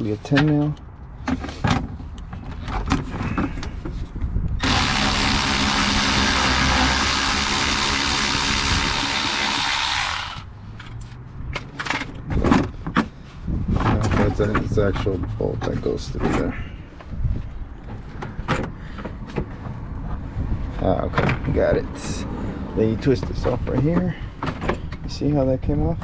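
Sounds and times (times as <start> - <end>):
cordless power driver running: 4.6 - 10.5.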